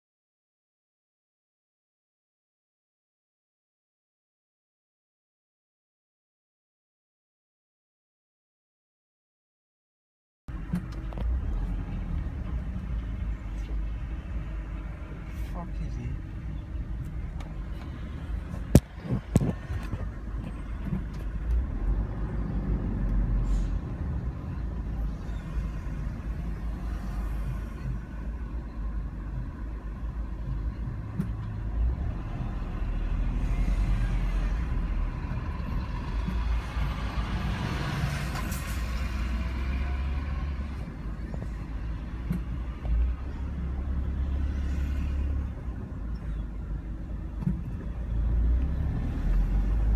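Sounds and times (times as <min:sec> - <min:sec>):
vehicle road rumble: 0:10.5 - 0:49.9.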